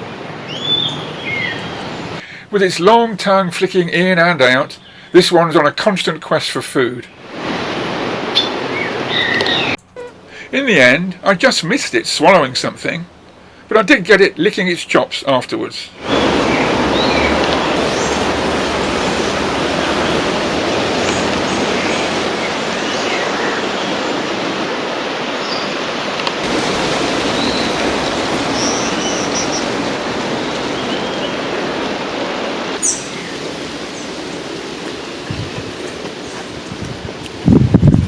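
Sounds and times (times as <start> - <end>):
steady rushing noise: 7.1 - 9.8, 15.8 - 38.0.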